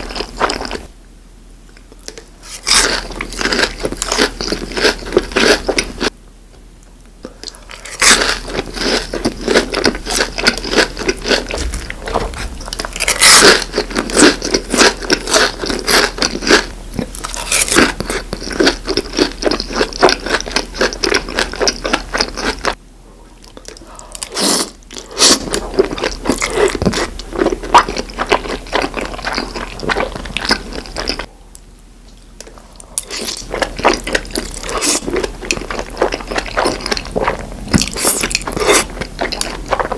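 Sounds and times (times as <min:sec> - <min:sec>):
person crunching food: 0:00.0 - 0:00.9, 0:02.0 - 0:06.2, 0:07.2 - 0:22.8, 0:23.4 - 0:31.3, 0:32.4 - 0:39.9.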